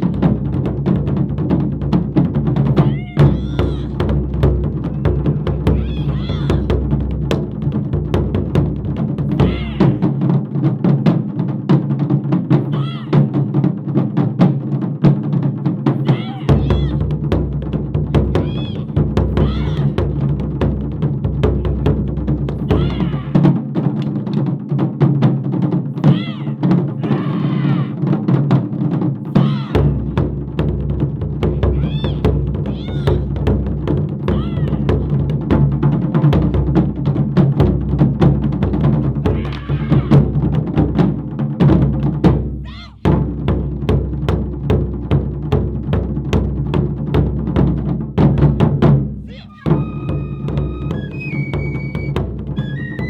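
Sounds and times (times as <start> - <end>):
taiko drums playing fast rhythm: 0.0 - 53.0
high rising and falling calls: 49.3 - 53.0.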